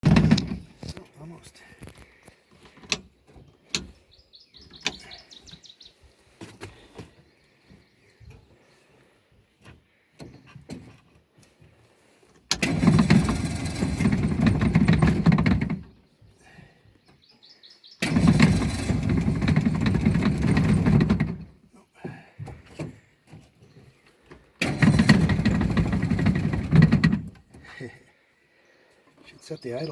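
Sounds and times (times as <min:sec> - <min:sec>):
outboard motor starting and running: 0:00.0 - 0:01.0, 0:12.4 - 0:16.1, 0:18.0 - 0:21.6, 0:24.2 - 0:28.0
birds chirping faintly: 0:01.0 - 0:12.4, 0:15.9 - 0:18.3, 0:27.5 - 0:29.9.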